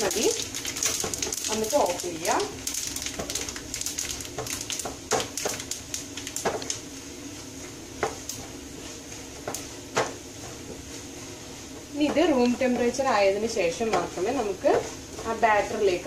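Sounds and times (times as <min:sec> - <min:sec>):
seeds popping in oil: 0:00.0 - 0:07.0
food sizzling in a pan: 0:00.0 - 0:16.0.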